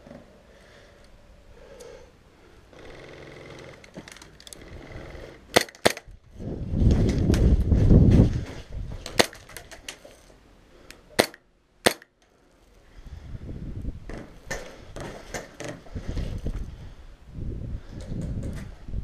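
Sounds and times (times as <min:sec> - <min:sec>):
airsoft gunshots: 0:05.5 - 0:06.1, 0:11.2 - 0:12.1.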